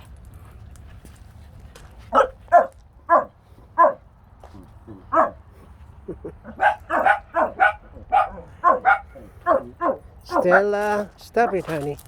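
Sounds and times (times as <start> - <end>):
dog barking: 2.1 - 4.0, 5.1 - 5.4, 6.6 - 10.7.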